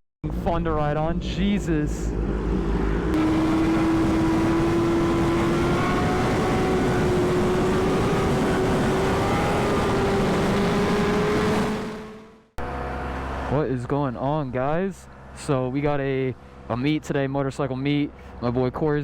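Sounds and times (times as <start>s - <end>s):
wind noise: 2.1s - 12.0s
motorbike engine revving high: 2.1s - 13.1s.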